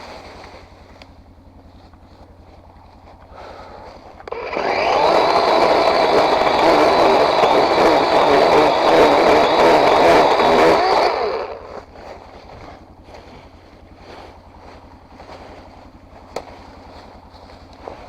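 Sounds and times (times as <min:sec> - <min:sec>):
chainsaw idling and revving: 0:03.1 - 0:18.0.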